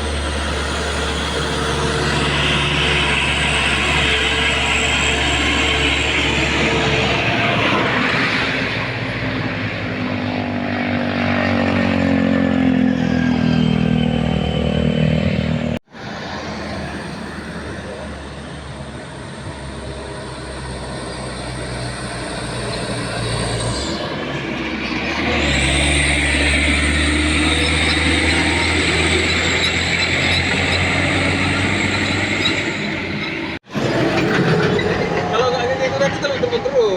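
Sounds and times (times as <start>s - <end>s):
truck engine labouring: 0.0s - 36.9s.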